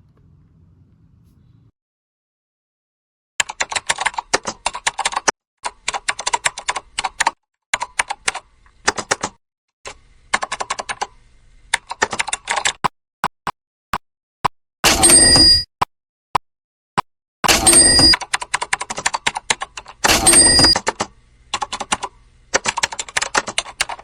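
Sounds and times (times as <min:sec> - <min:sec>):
keyboard typing clicks: 0:17.5 - 0:24.0.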